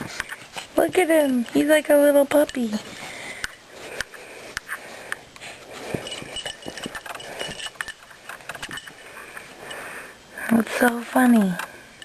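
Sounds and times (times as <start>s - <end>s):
dog paws and toy tapping: 0.0s - 4.8s.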